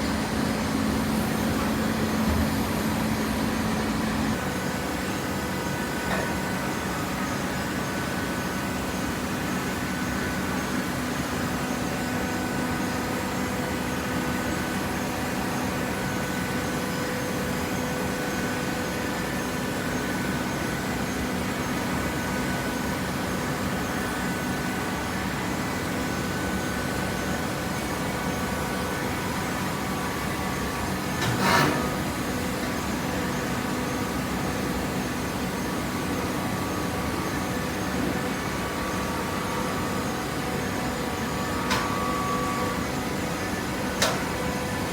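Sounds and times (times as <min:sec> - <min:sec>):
baler machine hum: 0:00.0 - 0:07.3
brief loud machine sound: 0:31.2 - 0:32.0.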